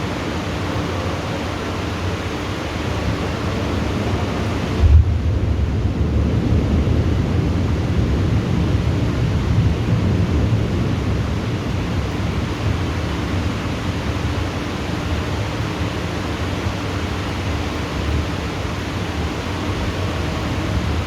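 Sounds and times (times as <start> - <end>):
rain rushing: 0.0 - 21.0
deep thunder rumble: 4.8 - 13.6.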